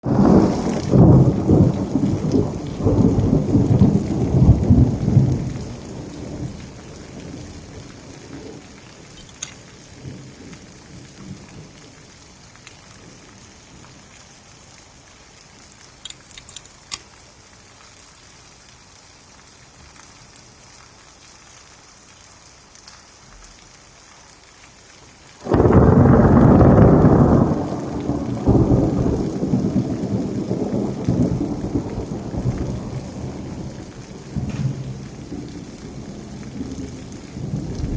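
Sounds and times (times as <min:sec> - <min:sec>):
loud thunderclap: 0:00.0 - 0:07.4, 0:25.4 - 0:37.9
thunder rumbling: 0:00.0 - 0:14.0, 0:25.4 - 0:37.9
steady rain hissing: 0:00.0 - 0:37.9
water drips: 0:05.2 - 0:25.7, 0:27.7 - 0:37.9.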